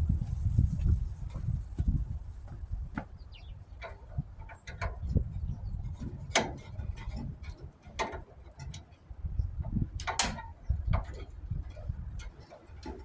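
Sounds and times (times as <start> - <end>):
low rumble: 0.0 - 2.9
hand tools clicking on metal: 9.9 - 13.0.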